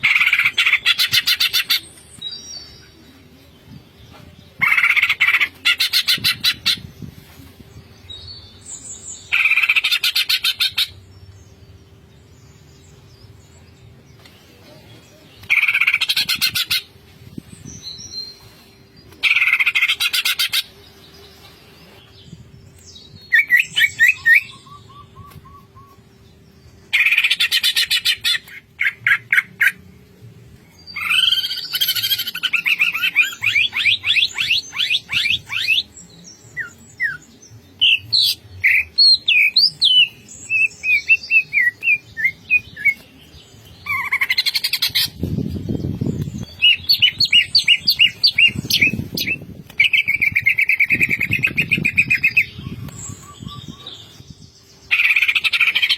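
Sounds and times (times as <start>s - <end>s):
bird singing: 17.6s - 55.9s.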